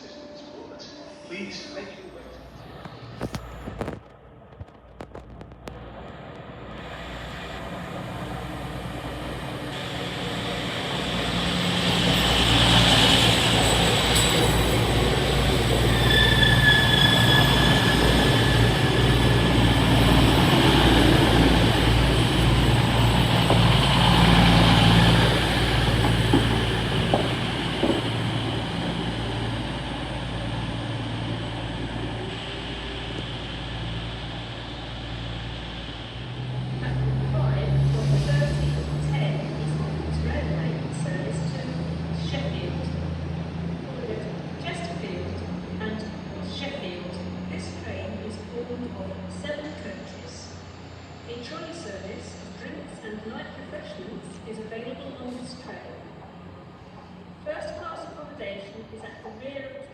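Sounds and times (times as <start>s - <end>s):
diesel train engine: 1.9s - 59.6s
high wheel squeal: 9.8s - 21.5s.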